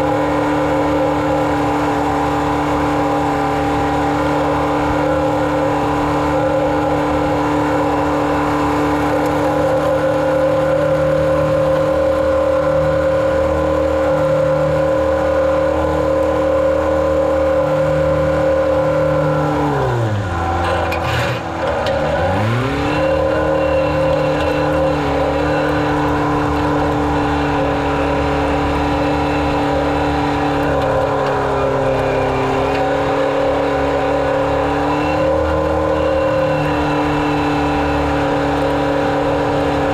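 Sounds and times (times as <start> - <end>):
farm vehicle engine running: 0.0 - 39.9.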